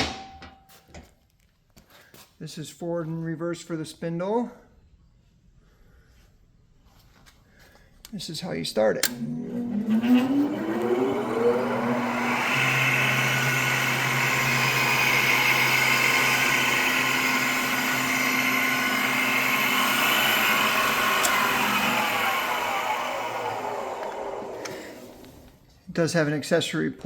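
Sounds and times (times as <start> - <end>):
grinder motor whining: 9.0 - 25.6.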